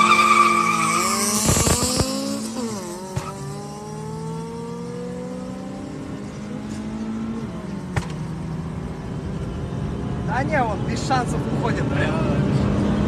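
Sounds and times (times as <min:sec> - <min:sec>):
car engine at full throttle: 0:00.0 - 0:13.0.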